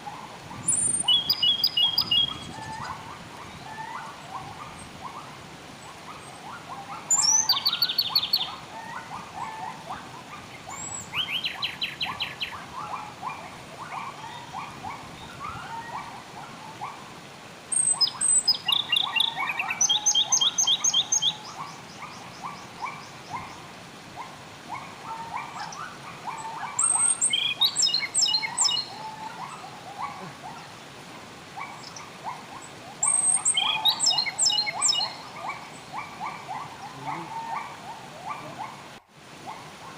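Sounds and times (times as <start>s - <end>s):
birds chattering calls: 5.9s - 16.1s, 17.7s - 23.8s, 25.1s - 30.9s, 31.6s - 38.7s
bird trilling: 7.1s - 8.6s, 25.6s - 30.3s, 33.0s - 37.6s.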